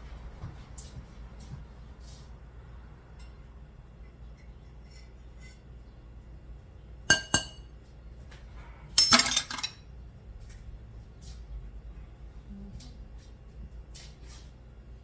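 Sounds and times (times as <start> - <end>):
kitchenware clinking: 7.1 - 7.6, 9.0 - 9.8
kitchenware rattling clatter: 9.0 - 9.8.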